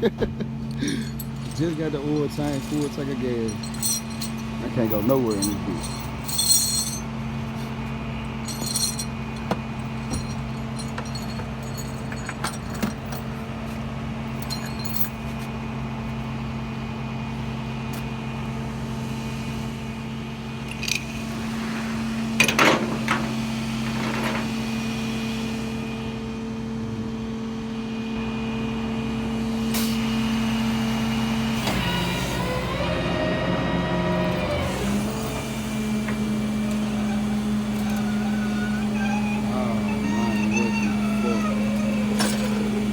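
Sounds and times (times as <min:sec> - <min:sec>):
truck engine running: 0:00.0 - 0:17.8, 0:30.4 - 0:42.9
metallic clinks: 0:00.6 - 0:07.1, 0:08.4 - 0:13.4, 0:14.3 - 0:15.2, 0:36.1 - 0:42.9.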